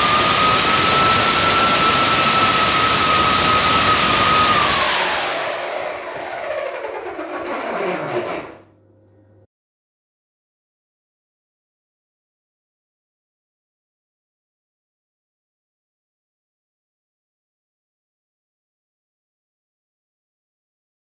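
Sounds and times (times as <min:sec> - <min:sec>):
electric ducted fan whining: 0:00.0 - 0:09.0.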